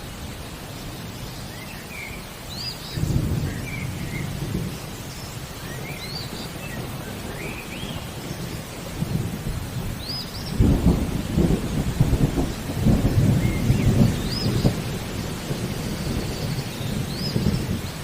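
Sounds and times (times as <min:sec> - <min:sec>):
steady rain: 0:00.0 - 0:18.0
birds chirping: 0:01.0 - 0:08.8, 0:12.4 - 0:18.0
thunder rumbling: 0:02.9 - 0:18.0.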